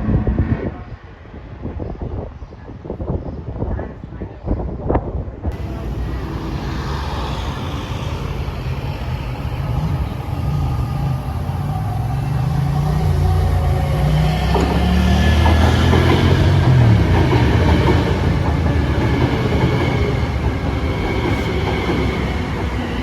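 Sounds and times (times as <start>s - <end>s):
train approaching: 5.5s - 23.0s.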